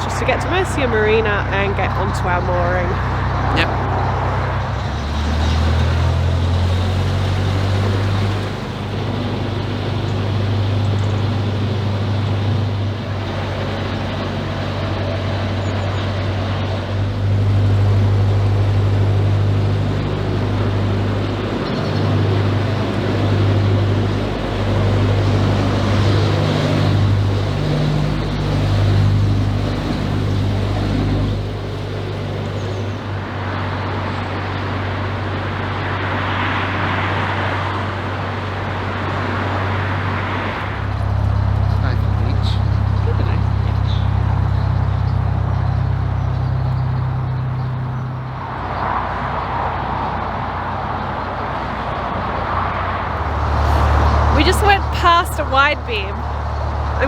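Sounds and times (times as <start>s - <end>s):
diesel engine droning: 0.0s - 57.0s
rushing noise: 2.6s - 57.0s.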